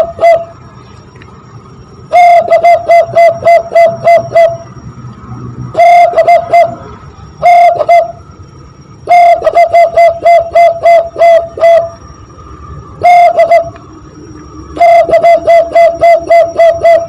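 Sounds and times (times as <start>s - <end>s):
hollow whistled cooing notes: 0.0s - 0.8s, 1.9s - 17.0s.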